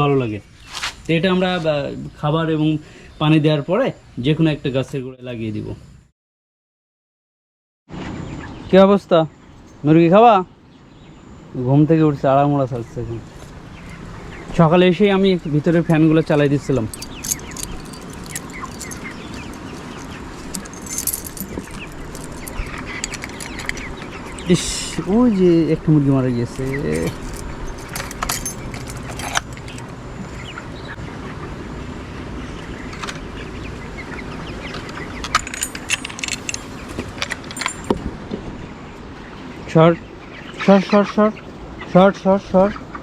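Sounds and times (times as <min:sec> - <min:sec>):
metallic clinks and jangles: 0:16.6 - 0:25.2, 0:26.4 - 0:29.9, 0:35.3 - 0:38.0.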